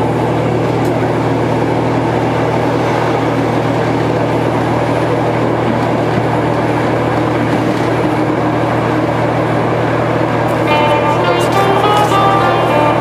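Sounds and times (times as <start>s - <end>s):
low hum: 0.0s - 13.0s
train running noise inside carriage: 0.0s - 13.0s
plucked music notes: 10.6s - 13.0s.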